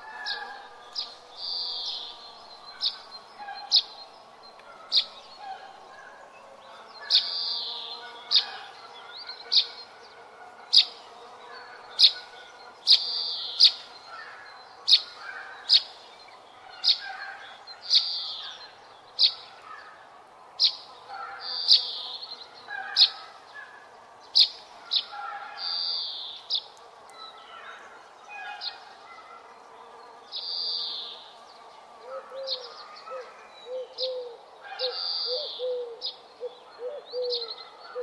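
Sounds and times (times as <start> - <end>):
faint bird calls: 32.0 - 38.0.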